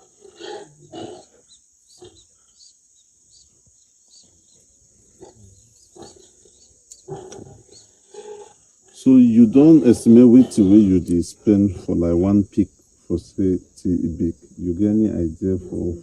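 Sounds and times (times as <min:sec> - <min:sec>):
pigs grunting: 0:00.0 - 0:02.4, 0:05.1 - 0:12.3.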